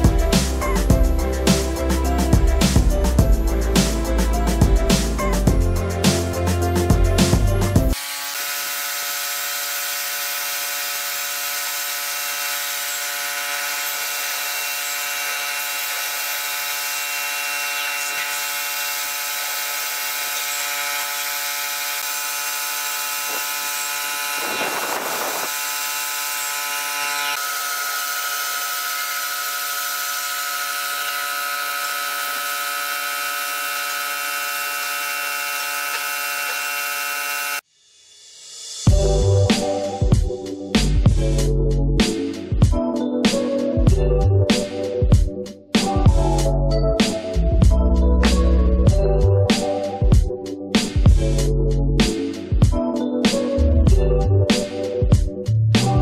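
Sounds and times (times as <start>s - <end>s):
spray gun hissing: 23.2s - 26.5s.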